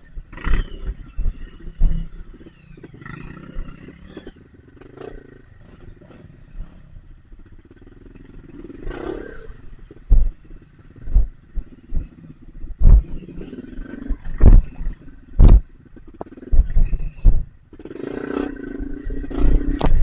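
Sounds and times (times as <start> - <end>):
dirt bike engine revving: 0.0 - 20.0
heavy thumps: 12.7 - 13.2, 14.3 - 15.7, 16.5 - 17.5.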